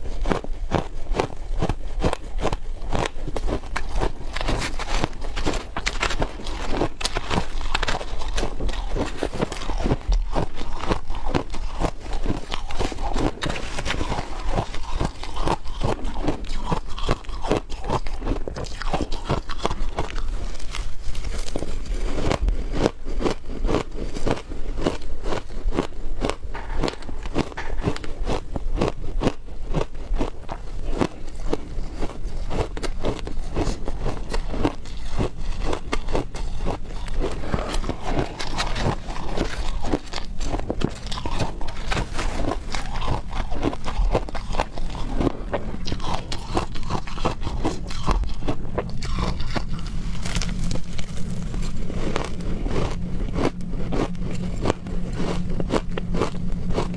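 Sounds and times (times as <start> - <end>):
ice being crunched: 2.1 - 23.0, 34.6 - 56.9.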